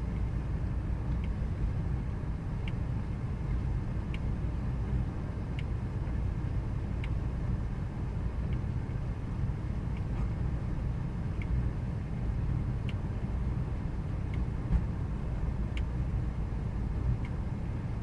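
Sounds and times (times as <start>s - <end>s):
faint engine click: 1.0s - 1.4s, 2.6s - 4.3s, 4.9s - 7.2s, 8.4s - 9.0s, 9.9s - 10.5s, 11.3s - 11.6s, 12.8s - 13.3s, 14.3s - 15.0s, 15.7s - 16.0s, 17.1s - 17.4s.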